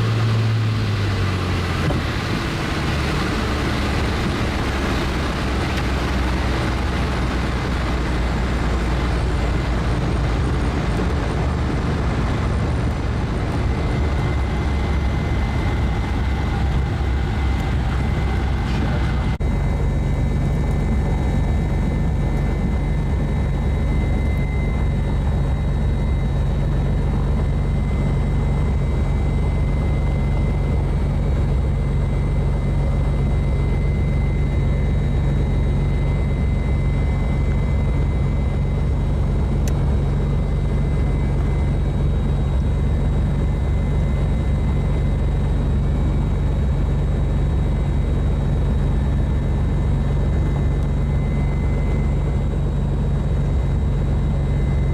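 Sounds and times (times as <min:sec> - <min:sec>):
propeller plane engine droning: 0:00.0 - 0:54.9.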